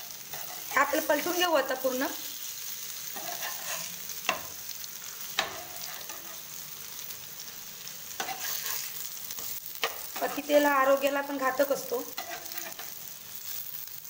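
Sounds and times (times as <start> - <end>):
food sizzling in oil: 0.0 - 14.0
spatula scraping a pan: 0.1 - 1.4, 2.3 - 6.7, 8.1 - 10.6, 11.8 - 13.6.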